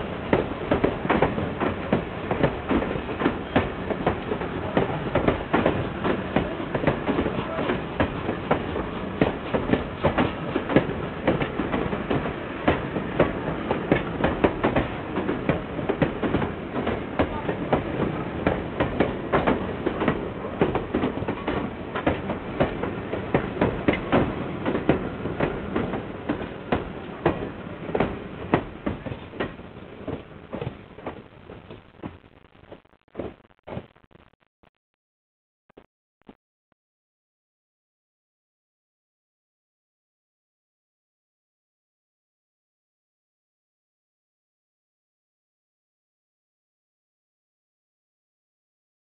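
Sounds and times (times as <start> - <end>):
train wheels clattering over rail joints: 0.2 - 31.7.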